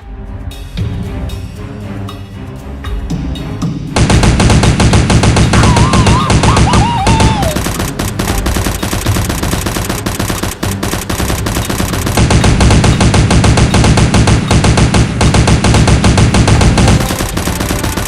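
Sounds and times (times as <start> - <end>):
rapid automatic gunfire: 4.0 - 18.0.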